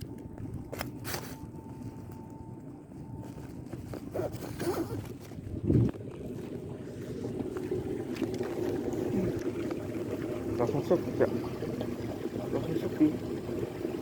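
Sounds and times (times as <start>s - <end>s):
water lapping: 3.3s - 14.0s
wind buffeting microphone: 5.2s - 9.6s.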